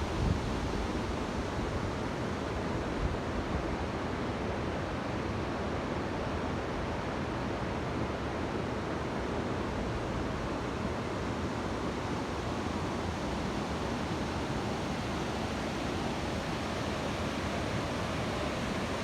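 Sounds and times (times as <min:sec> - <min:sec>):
wind rumble on microphone: 0:00.0 - 0:02.2.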